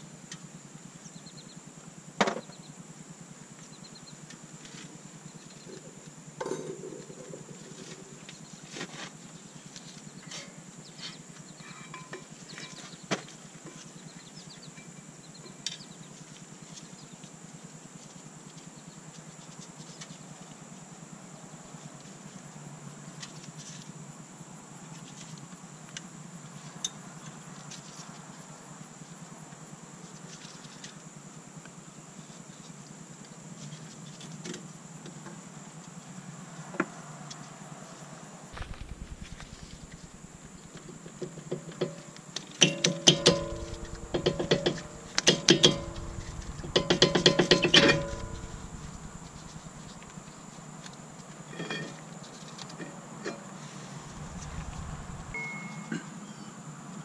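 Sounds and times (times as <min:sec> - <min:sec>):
faint low hum: 0:38.6 - 0:41.3, 0:43.1 - 0:51.0, 0:53.8 - 0:56.5
high steady whine: 0:38.6 - 0:41.3, 0:43.0 - 0:50.9, 0:53.8 - 0:55.9
hand tools clicking and knocking: 0:42.6 - 0:48.7.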